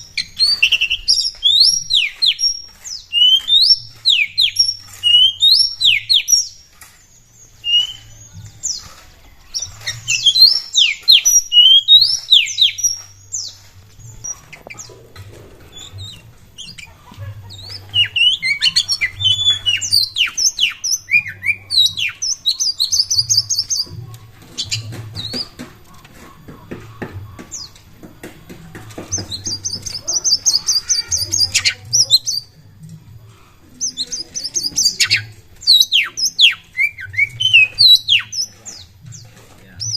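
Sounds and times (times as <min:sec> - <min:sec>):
bird singing whistled notes: 0:00.0 - 0:14.9, 0:17.5 - 0:24.0, 0:33.8 - 0:39.9
bird buzzy chattering: 0:00.0 - 0:32.6, 0:33.7 - 0:39.9.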